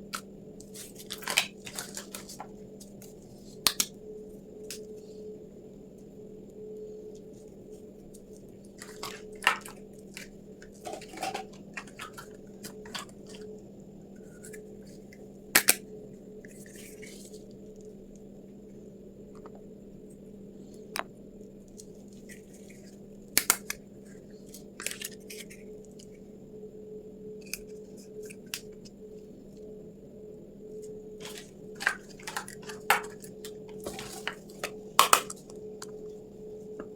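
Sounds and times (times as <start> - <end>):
low hum: 0.0 - 36.9
packaging crinkling: 0.6 - 3.0, 8.6 - 13.5, 31.2 - 35.5.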